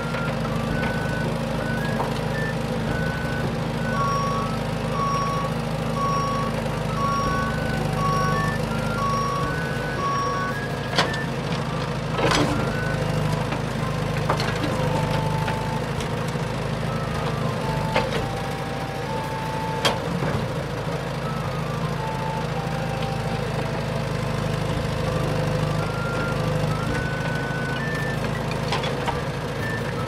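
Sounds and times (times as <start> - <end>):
short electronic beeps: 0.1 - 11.4.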